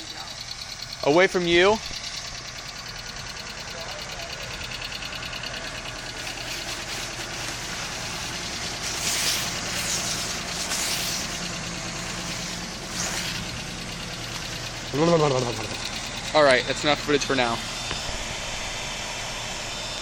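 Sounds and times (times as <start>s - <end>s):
car engine idling: 0.0s - 20.0s
loud hissing rush: 6.2s - 19.6s.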